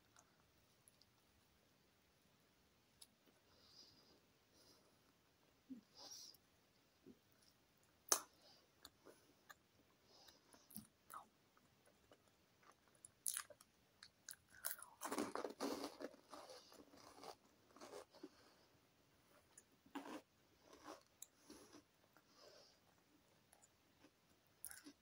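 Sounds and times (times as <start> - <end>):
crunchy snack chewing: 11.8 - 18.3, 19.9 - 21.9, 24.0 - 25.0.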